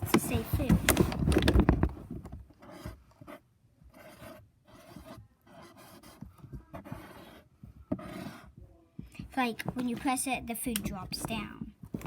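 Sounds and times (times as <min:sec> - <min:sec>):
scratchy handwriting strokes: 0:02.6 - 0:08.6.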